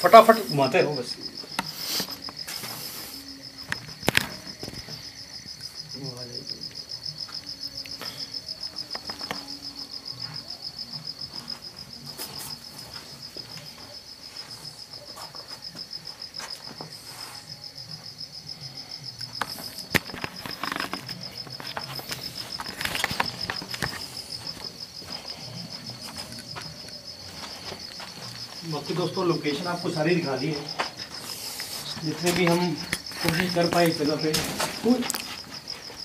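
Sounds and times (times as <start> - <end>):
crickets chirping: 0.0 - 36.0
scuffs and clicks: 19.3 - 28.7, 30.7 - 36.0.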